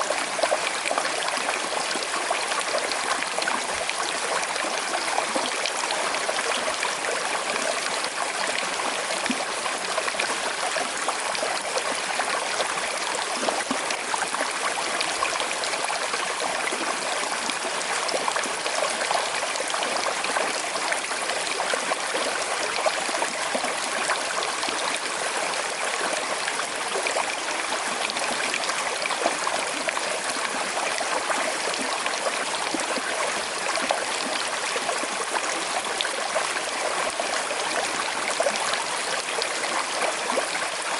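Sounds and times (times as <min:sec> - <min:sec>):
river flowing over stones: 0:00.0 - 0:40.9.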